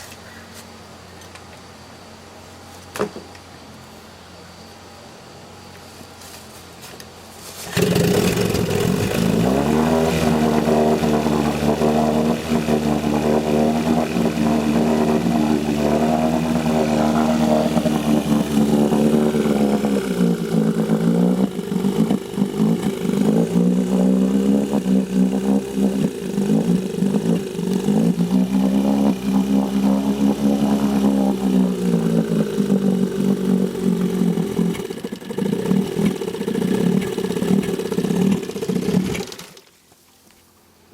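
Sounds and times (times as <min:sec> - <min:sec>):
outboard motor running: 0:07.6 - 0:39.8.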